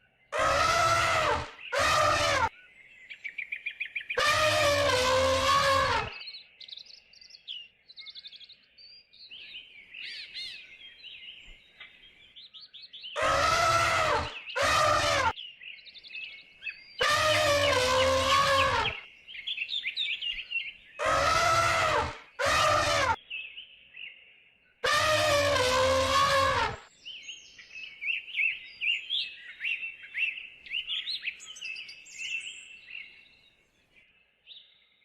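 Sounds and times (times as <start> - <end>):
drawn-out animal calls: 0.4 - 2.5, 4.2 - 6.1, 13.2 - 15.3, 17.0 - 19.0, 21.0 - 23.2, 24.8 - 26.8.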